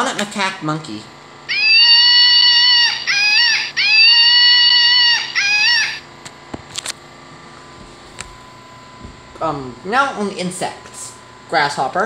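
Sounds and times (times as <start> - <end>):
monkey call from toy speaker: 1.5 - 6.1.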